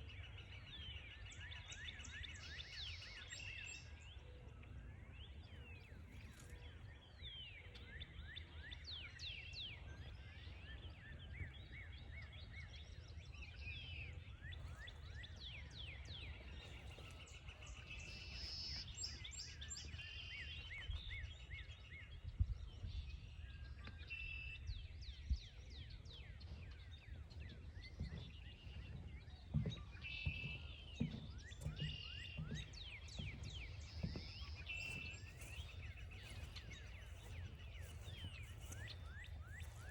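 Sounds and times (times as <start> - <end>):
many birds chirping and trilling: 0.0 - 39.9
soft thumps: 28.0 - 38.8.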